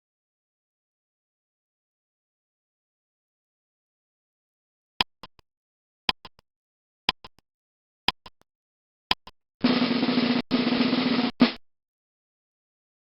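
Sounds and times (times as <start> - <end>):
timer ticking: 5.0 - 5.4, 6.1 - 6.4, 7.1 - 7.4, 8.1 - 8.5, 9.1 - 9.4.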